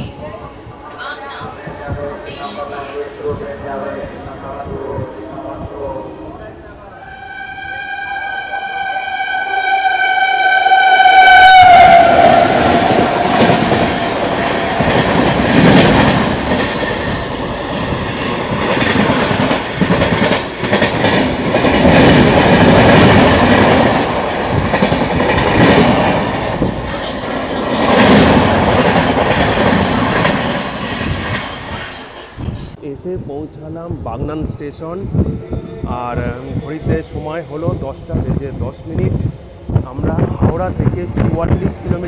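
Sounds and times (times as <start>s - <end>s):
passenger coaches rumbling past: 0.0s - 42.0s
train horn: 6.8s - 14.0s.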